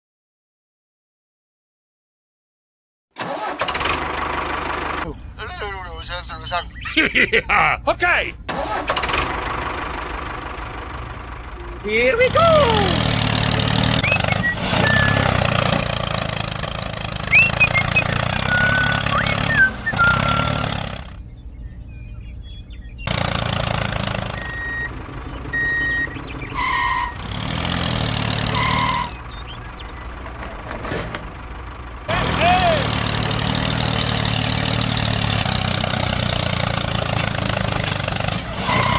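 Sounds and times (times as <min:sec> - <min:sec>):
small vehicle engine running: 0:03.2 - 0:05.4, 0:08.5 - 0:38.9
short high squeaks: 0:26.5 - 0:27.3, 0:28.4 - 0:29.3, 0:36.4 - 0:38.9.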